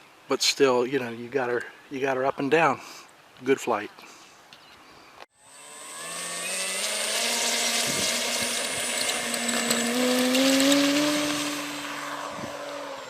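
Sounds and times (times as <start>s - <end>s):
model airplane motor whine: 5.4s - 13.0s.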